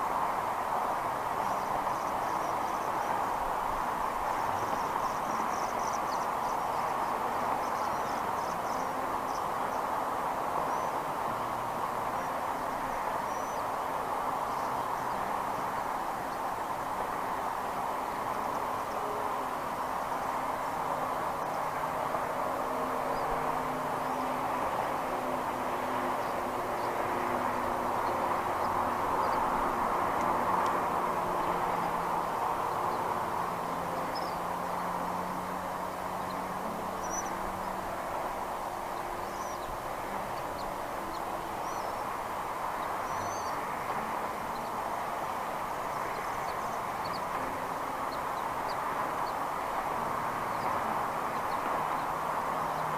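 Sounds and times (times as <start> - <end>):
steady rushing noise: 0.0 - 52.9
faint low wavering drone: 1.4 - 52.9
small birds chirping: 34.0 - 38.4, 39.0 - 49.8.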